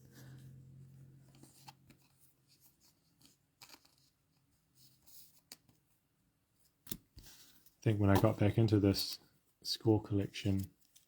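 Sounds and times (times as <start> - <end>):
trading cards rustling: 3.0 - 4.4, 6.9 - 9.2.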